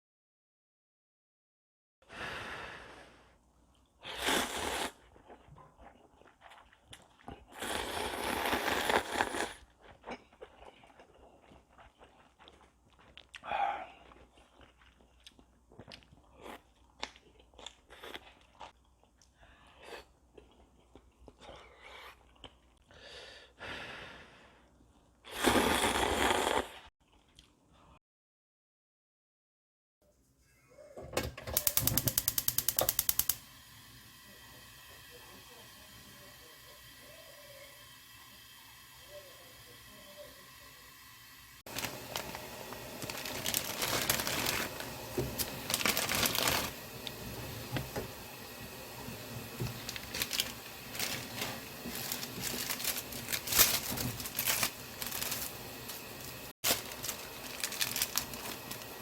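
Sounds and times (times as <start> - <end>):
person slurping noodles: 4.0 - 9.8, 25.2 - 26.9
small clicks: 31.6 - 33.4
plastic packaging crinkling: 41.7 - 47.2, 49.6 - 59.0.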